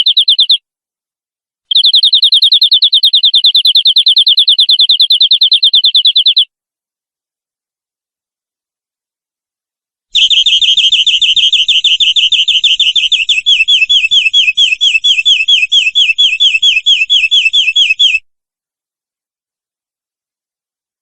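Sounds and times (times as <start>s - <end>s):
canary trilling: 0.0s - 0.6s, 1.7s - 6.5s, 10.2s - 18.2s.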